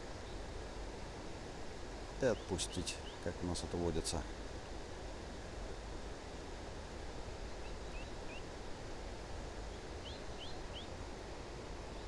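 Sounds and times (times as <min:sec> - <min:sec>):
small bird chirping: 0:02.2 - 0:03.4, 0:07.6 - 0:08.5, 0:09.6 - 0:11.0.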